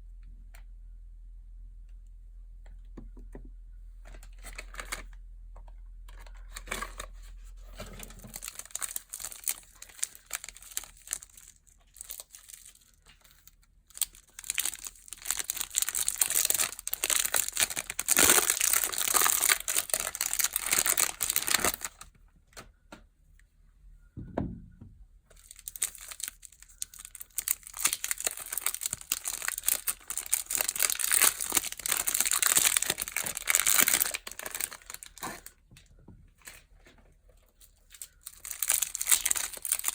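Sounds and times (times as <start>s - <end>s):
wrapping crinkling and tearing: 4.0s - 5.2s, 6.1s - 22.1s, 25.3s - 35.6s, 36.4s - 39.9s
soft thump: 24.2s - 25.1s.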